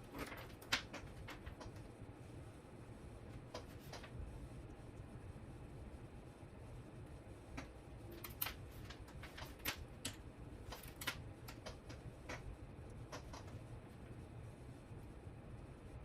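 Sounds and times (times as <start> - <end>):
faint low hum: 0.0 - 16.0
small hard parts clicking: 8.1 - 12.5.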